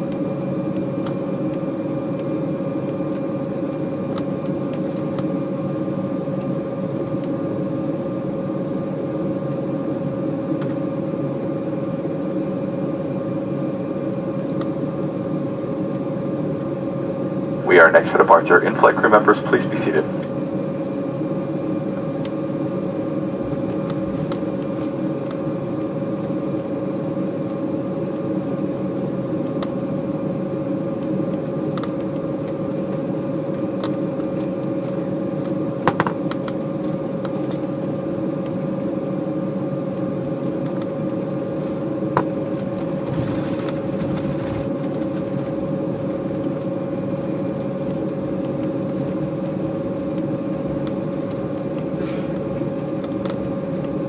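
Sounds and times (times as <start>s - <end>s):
airliner cabin drone: 0.0s - 54.0s
engine whine: 13.6s - 32.8s.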